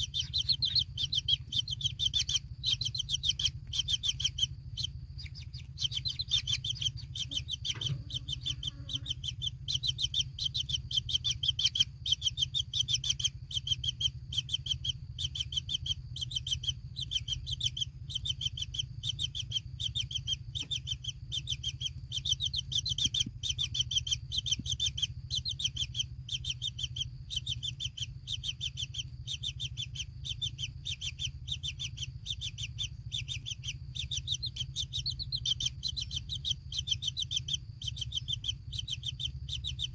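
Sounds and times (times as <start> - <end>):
bird chirping: 0.0 - 39.9
low steady hum: 0.0 - 39.9.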